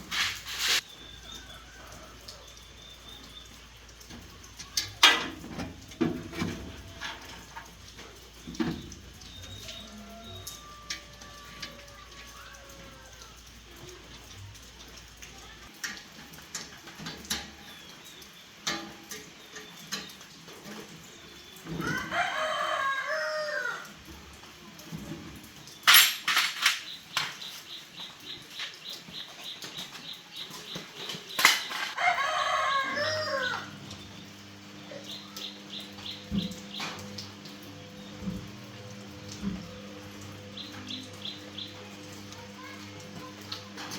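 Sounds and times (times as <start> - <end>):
rooster crowing: 1.2 - 2.6, 9.6 - 13.4, 21.8 - 24.0, 31.7 - 33.9.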